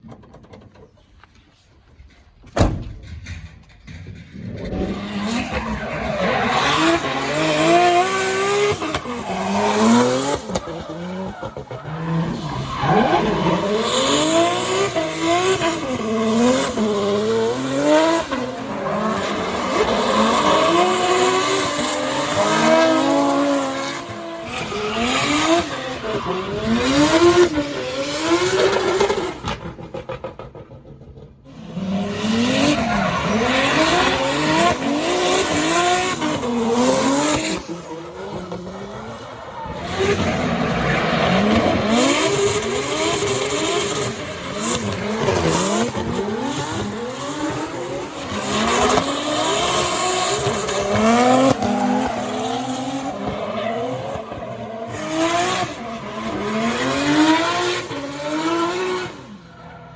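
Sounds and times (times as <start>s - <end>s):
sharp bang: 2.5s - 5.4s
car engine revving: 4.3s - 59.5s.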